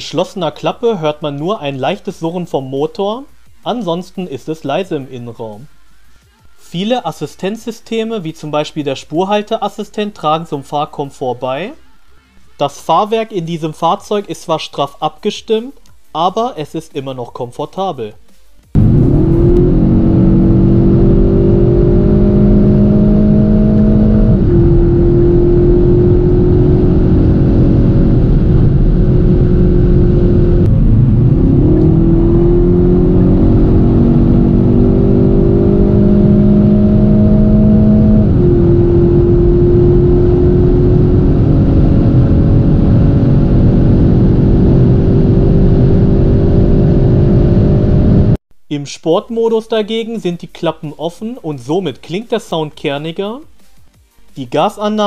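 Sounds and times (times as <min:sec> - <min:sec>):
car engine accelerating: 0:18.7 - 0:48.4.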